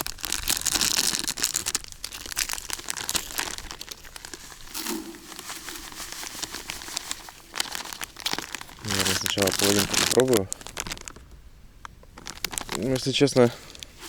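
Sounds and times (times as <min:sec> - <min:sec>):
packet crinkling: 0:00.0 - 0:14.0.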